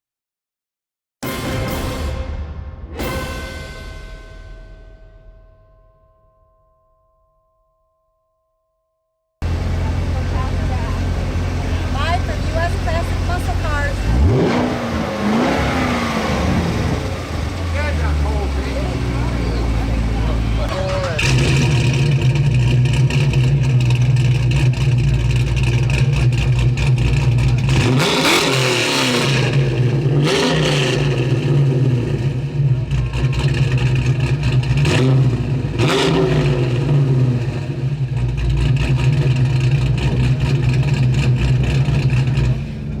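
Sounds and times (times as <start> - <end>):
car engine idling and revving: 9.4 - 43.0.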